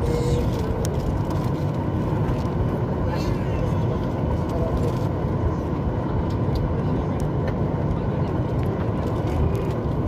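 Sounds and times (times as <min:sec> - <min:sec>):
airplane cabin engine rumble: 0:00.0 - 0:10.0.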